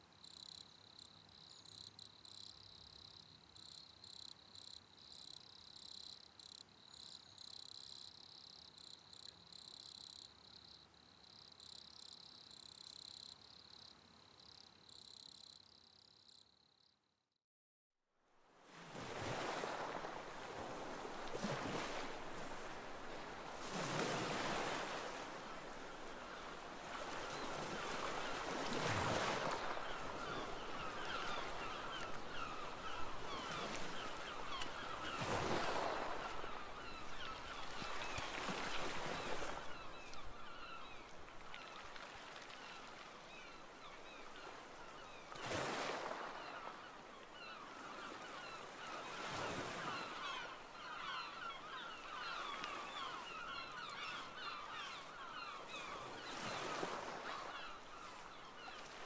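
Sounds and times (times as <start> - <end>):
waves breaking on shore: 18.4 - 59.0.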